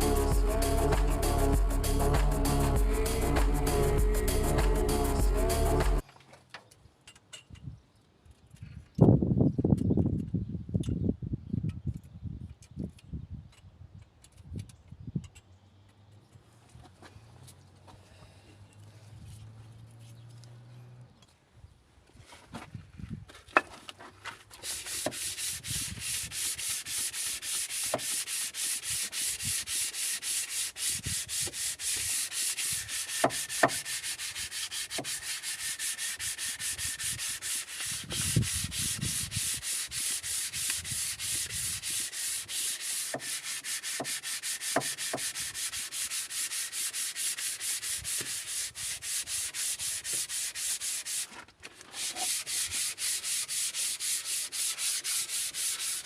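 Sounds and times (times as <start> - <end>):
abrasive rubbing on metal: 24.6 - 51.3.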